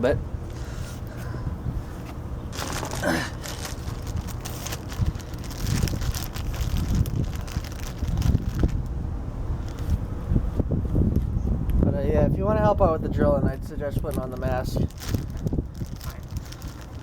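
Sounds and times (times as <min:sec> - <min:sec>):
wind buffeting microphone: 0:01.3 - 0:17.0
rustling: 0:01.9 - 0:08.9, 0:14.9 - 0:17.0.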